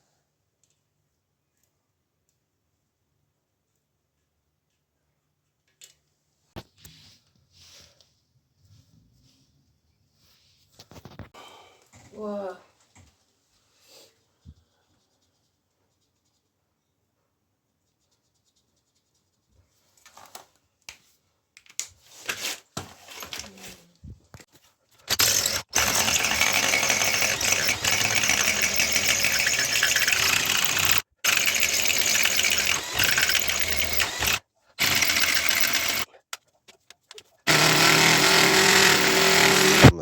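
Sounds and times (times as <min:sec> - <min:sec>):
power drill boring into floor: 0:25.1 - 0:36.1, 0:37.5 - 0:40.0.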